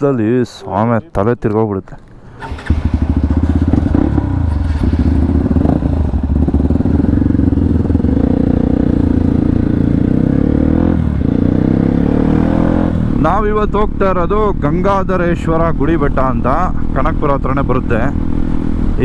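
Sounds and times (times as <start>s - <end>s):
motorcycle engine running loud: 2.4s - 16.0s.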